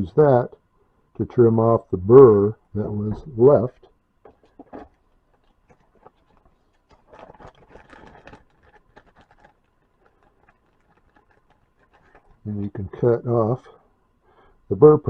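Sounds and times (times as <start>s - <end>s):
blade scraping plastic: 4.3s - 12.4s.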